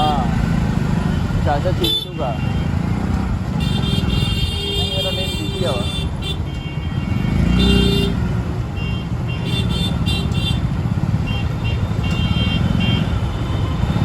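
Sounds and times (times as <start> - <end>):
traffic engines rumbling: 0.0 - 14.0
vehicle horns honking: 1.8 - 14.0.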